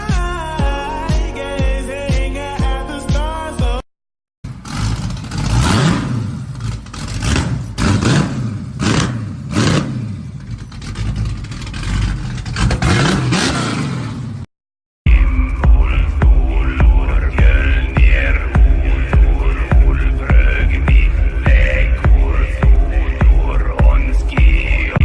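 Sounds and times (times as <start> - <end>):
car engine revving: 4.4 - 14.5, 15.1 - 25.0
tyre road noise: 4.4 - 14.5, 15.1 - 25.0.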